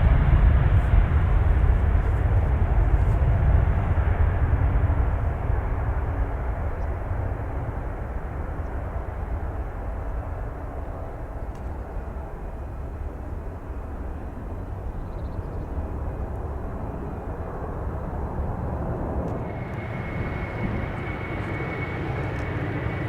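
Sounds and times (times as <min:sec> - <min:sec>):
distant jet engines rumbling: 0:00.0 - 0:23.0.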